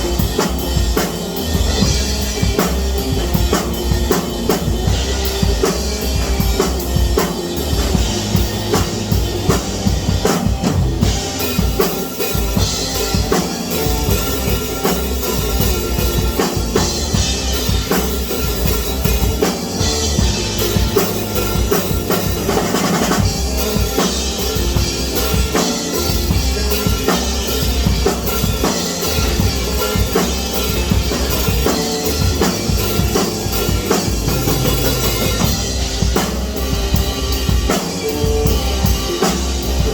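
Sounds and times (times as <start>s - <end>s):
drum kit beat: 0.0s - 39.9s
pitched instruments: 0.0s - 39.9s.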